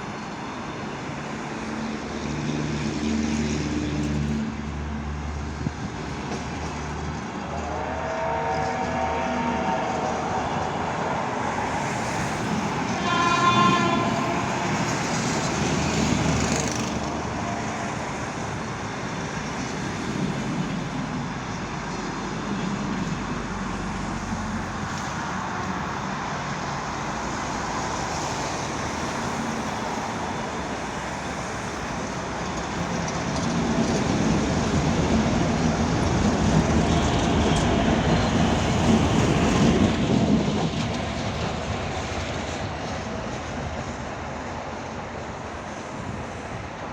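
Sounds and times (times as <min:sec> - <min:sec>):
train rumbling: 0:00.0 - 0:46.9
locomotive horn blast: 0:07.4 - 0:11.4, 0:12.8 - 0:15.4.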